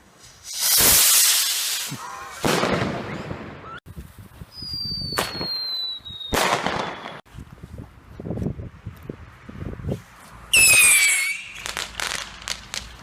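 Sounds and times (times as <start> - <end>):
fireworks hissing and crackling: 0.0 - 3.4, 9.9 - 13.0
firework sharp crack: 0.2 - 3.5, 6.3 - 7.2
firework falling whistle: 4.5 - 7.2, 10.5 - 11.8.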